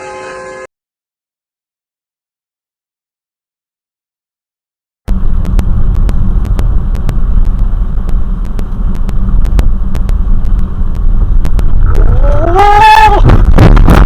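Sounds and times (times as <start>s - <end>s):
low vehicle rumble: 5.1s - 14.0s
clicks: 5.4s - 12.6s
short rising wail: 11.8s - 13.6s.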